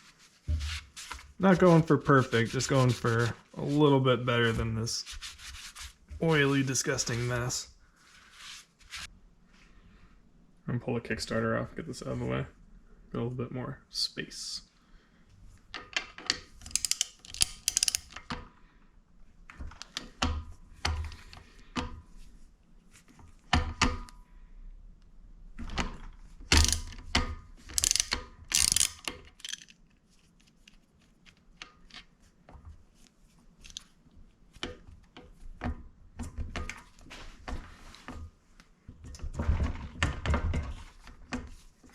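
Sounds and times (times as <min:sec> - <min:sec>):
ratchet wrench clicking: 0:16.6 - 0:18.2, 0:26.6 - 0:26.9, 0:27.8 - 0:29.7.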